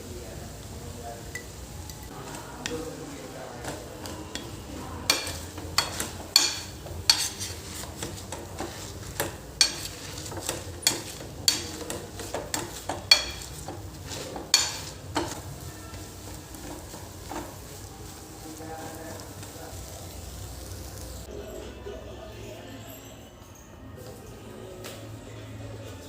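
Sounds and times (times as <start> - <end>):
faint sizzle of frying: 0.0 - 21.3
utensil scraping a pan: 2.1 - 19.3.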